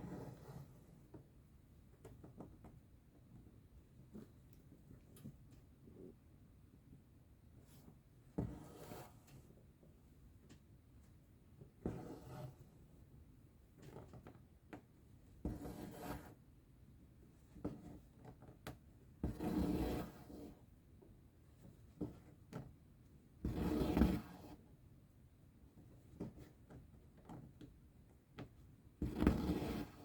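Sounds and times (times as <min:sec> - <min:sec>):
thread rubbing through fabric: 0:23.4 - 0:24.6.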